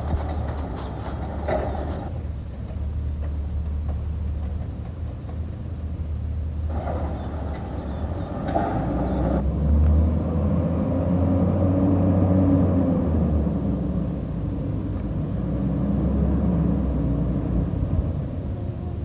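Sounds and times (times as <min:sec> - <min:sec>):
garbage truck engine rumbling: 0:00.0 - 0:09.4.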